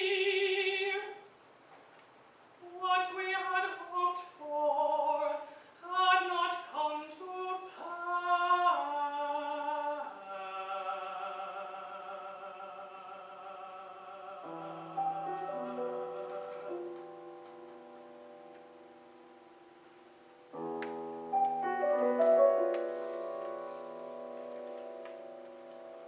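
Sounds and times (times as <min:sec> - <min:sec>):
woman singing art song: 0:00.0 - 0:01.3, 0:02.6 - 0:17.6
piano accompaniment: 0:13.9 - 0:26.0.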